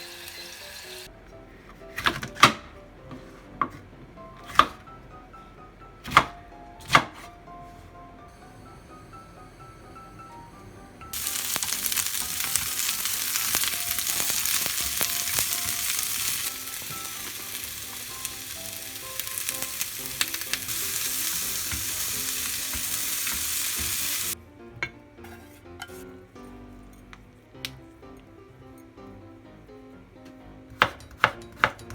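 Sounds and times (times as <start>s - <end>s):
food sizzling in hot oil: 0.0s - 1.1s, 11.1s - 24.4s.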